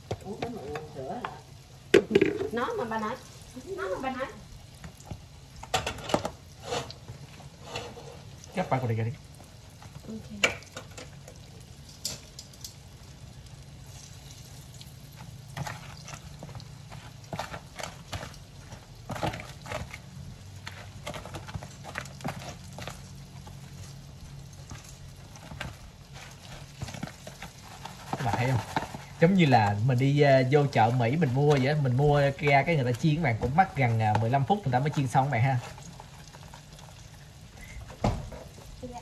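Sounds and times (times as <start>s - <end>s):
meat frying in oil: 0.0s - 39.0s
metal tongs clicking on pan: 11.8s - 12.8s.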